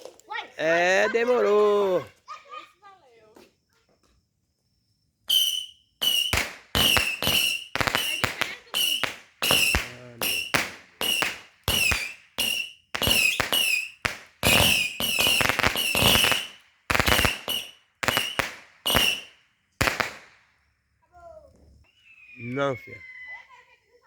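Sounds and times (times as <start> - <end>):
firecrackers banging: 5.3 - 20.5.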